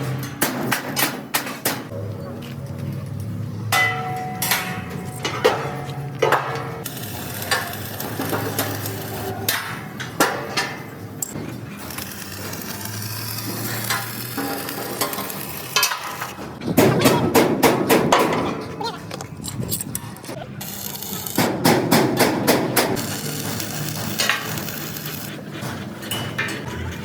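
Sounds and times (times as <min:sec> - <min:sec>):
metal clanks and knocks: 0:00.0 - 0:02.1, 0:02.7 - 0:06.9, 0:09.4 - 0:11.8, 0:13.6 - 0:19.3, 0:25.6 - 0:27.0.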